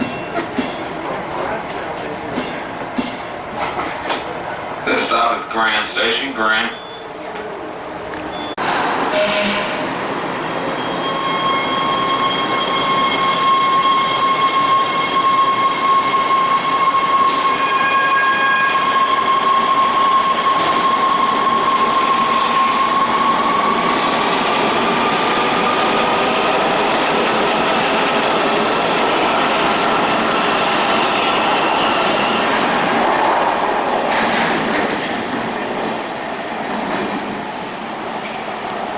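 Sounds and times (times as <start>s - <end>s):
train high-pitched whine: 8.2s - 33.8s.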